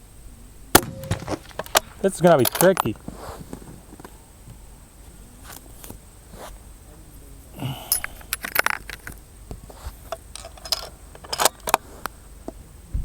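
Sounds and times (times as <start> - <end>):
sharp metallic clicks: 0.8 - 3.0.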